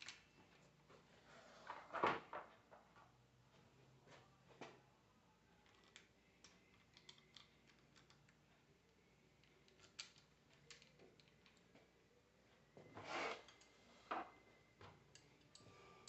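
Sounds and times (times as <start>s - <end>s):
light clicks of small parts handled: 5.6s - 8.6s, 9.4s - 11.9s, 15.0s - 15.7s.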